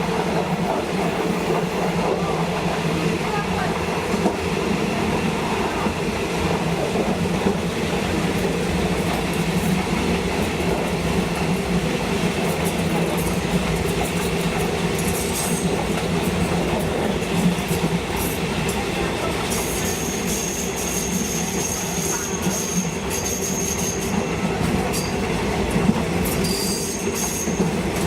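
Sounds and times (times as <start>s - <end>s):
train wheels rumbling on rail: 0.0s - 28.0s
high wheel squeal: 19.6s - 24.2s, 26.4s - 27.7s.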